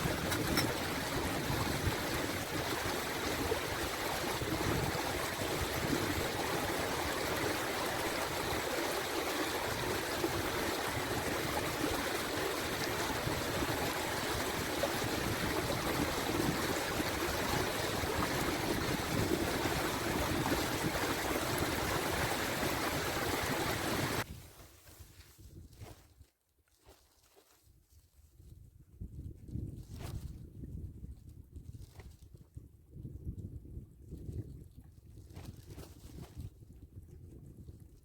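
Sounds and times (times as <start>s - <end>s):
steady rushing noise: 0.0s - 24.3s.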